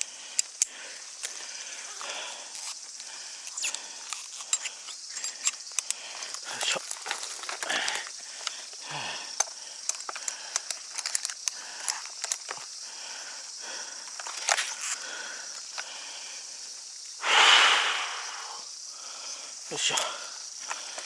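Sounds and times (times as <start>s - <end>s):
climbing gear clicking and rattling: 3.5s - 13.4s, 14.0s - 15.9s.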